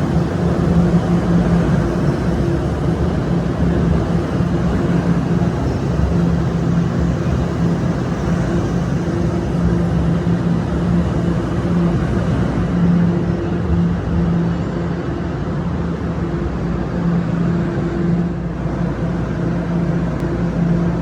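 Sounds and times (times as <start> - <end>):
subway train rumbling: 0.0 - 21.0
low hum: 10.9 - 21.0.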